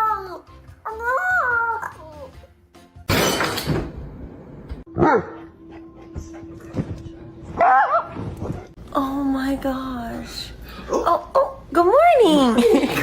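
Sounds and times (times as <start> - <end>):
background music: 0.0 - 9.8
dog barking: 4.9 - 5.5, 7.6 - 8.2.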